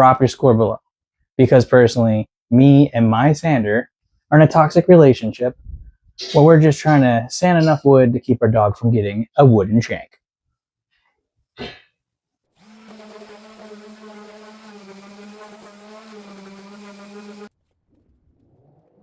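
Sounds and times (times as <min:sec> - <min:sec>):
power sander running: 0:12.6 - 0:17.5.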